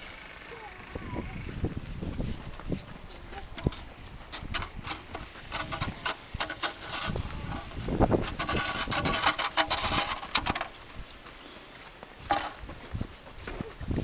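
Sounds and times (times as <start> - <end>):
snow shovel scraping snow: 5.3 - 10.5.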